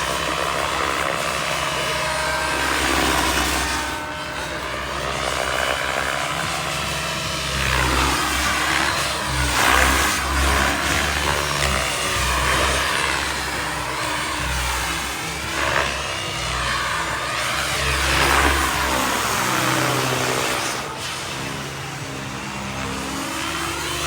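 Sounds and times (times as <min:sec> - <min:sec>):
helicopter rotor beat: 0:00.0 - 0:24.0
turbine whine: 0:00.0 - 0:24.0.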